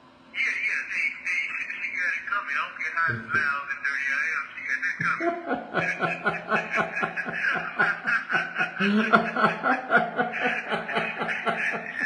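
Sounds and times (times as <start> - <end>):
man laughing hard: 5.2 - 12.0.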